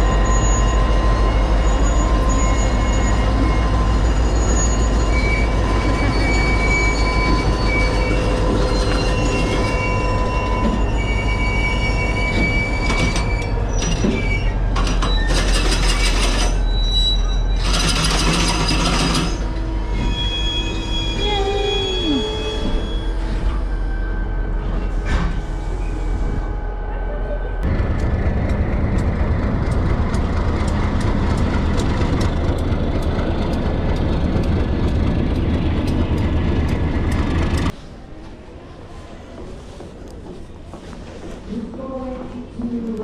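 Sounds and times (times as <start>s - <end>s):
wheels squealing: 0.0s - 24.4s
train rumbling on rails: 0.0s - 43.0s.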